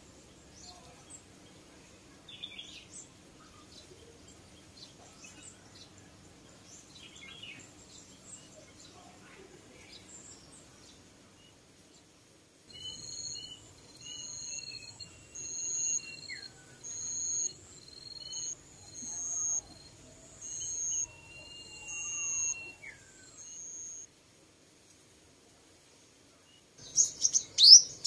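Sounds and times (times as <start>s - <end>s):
bird lower gliding call: 12.7s - 24.1s
birds whistling high notes: 12.7s - 24.1s.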